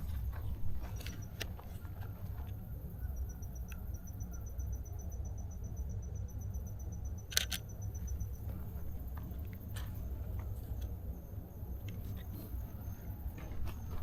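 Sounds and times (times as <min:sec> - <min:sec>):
insect chirping: 0:00.0 - 0:14.0
low steady rumble: 0:00.0 - 0:14.0
sharp clicks: 0:07.3 - 0:07.7.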